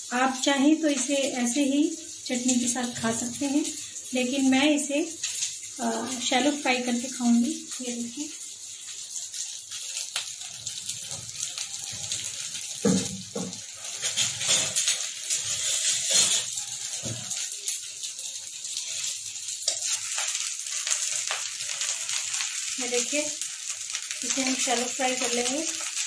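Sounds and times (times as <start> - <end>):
food sizzling in oil: 0.0 - 26.0
knocks and clinks in a pan: 12.8 - 17.4.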